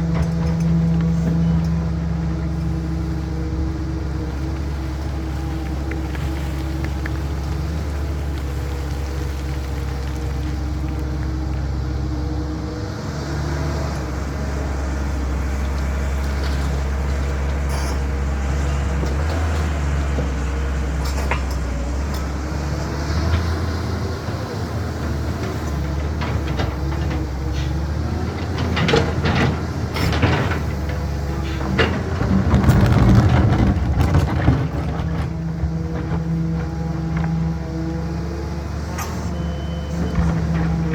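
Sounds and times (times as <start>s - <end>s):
excavator diesel engine running: 0.0s - 40.9s
metal clanks and rattling scrapes: 25.4s - 37.6s.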